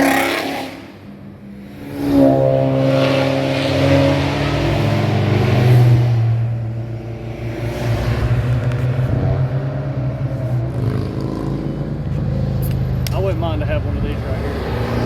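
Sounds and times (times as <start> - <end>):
car engine passing by: 1.8 - 13.3.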